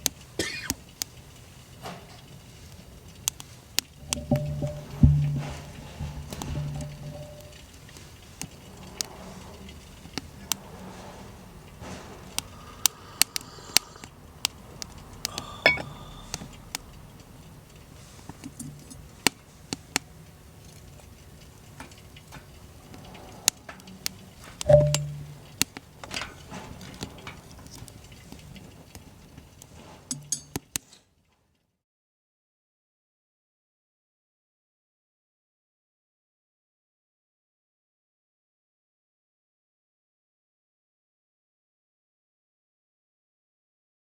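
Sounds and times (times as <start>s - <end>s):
sharp clicks and ringing clinks: 4.0s - 7.6s, 15.6s - 16.4s, 24.6s - 25.5s
loud knock: 4.1s - 7.4s.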